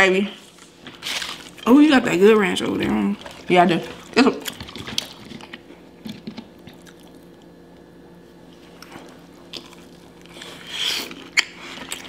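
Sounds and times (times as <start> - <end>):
faint steady hum: 0.0 - 12.0
soft chewing: 2.8 - 12.0.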